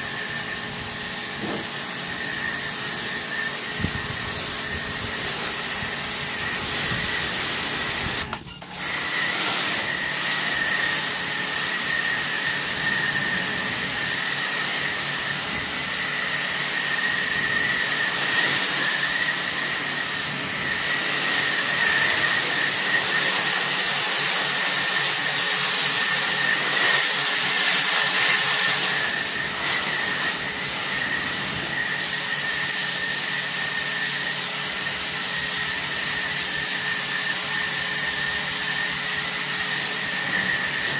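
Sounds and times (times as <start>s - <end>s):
pressure washer water jet hiss: 0.0s - 40.9s
pump whine: 0.0s - 40.9s.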